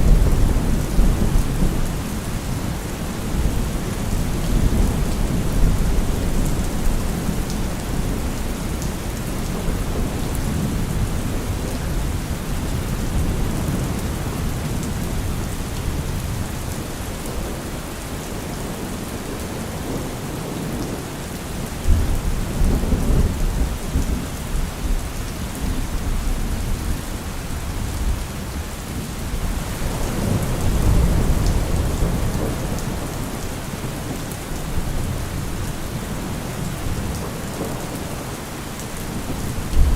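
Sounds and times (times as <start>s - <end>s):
low rolling thunder: 0.0s - 21.1s, 21.8s - 39.9s
heavy rain falling: 0.0s - 39.9s.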